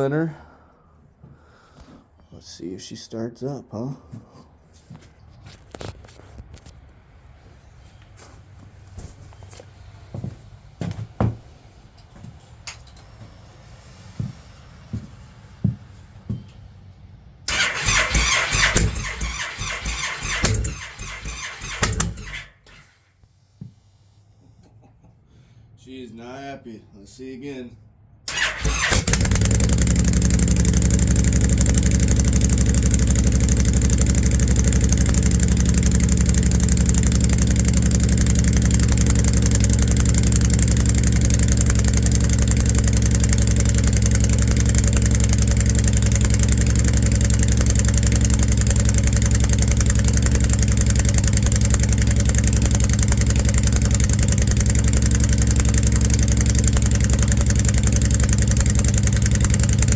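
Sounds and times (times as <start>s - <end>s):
motorcycle engine idling: 17.5s - 23.0s, 28.3s - 59.9s.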